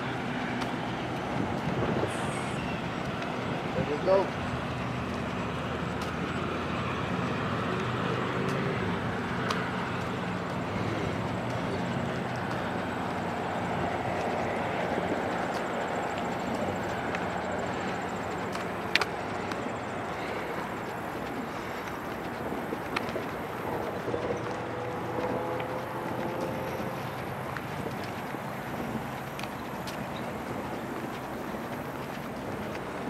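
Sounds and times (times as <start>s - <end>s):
low engine drone: 0.0s - 33.0s
train wheels rumbling on rail: 0.0s - 33.0s.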